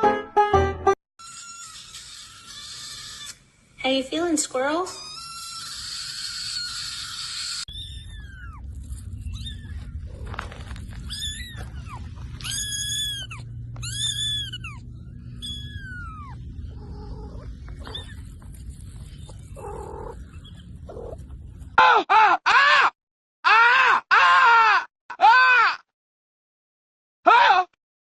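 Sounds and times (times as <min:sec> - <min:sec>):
dog crying loudly: 0:01.3 - 0:03.3, 0:05.0 - 0:08.6, 0:11.0 - 0:18.2
low background rumble: 0:07.7 - 0:21.8
dog whining: 0:11.0 - 0:18.4, 0:19.1 - 0:21.2.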